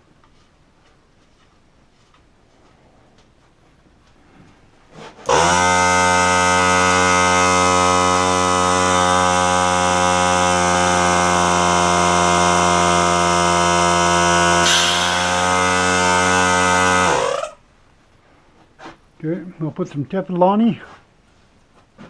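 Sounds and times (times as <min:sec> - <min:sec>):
air compressor motor humming: 0:05.2 - 0:17.6
air hiss: 0:14.6 - 0:15.6.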